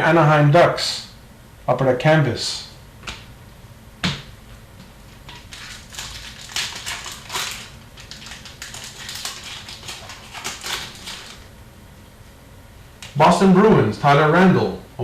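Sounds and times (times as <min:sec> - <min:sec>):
foil wrappers crinkling and tearing: 0:05.2 - 0:11.5
cards rustling: 0:05.3 - 0:11.4.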